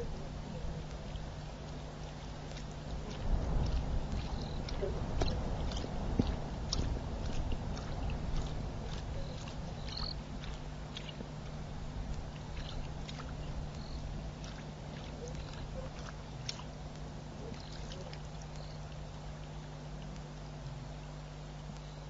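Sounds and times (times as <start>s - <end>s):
low rumble: 0.0s - 17.5s
low electrical hum: 0.0s - 22.0s
faint ticks: 0.8s - 11.3s, 12.1s - 21.0s, 21.6s - 22.0s
high chirps: 9.2s - 10.2s.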